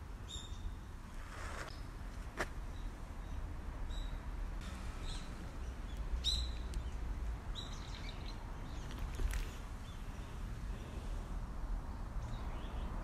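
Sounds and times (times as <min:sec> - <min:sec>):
small bird chirping: 0:00.2 - 0:01.9, 0:05.0 - 0:10.4.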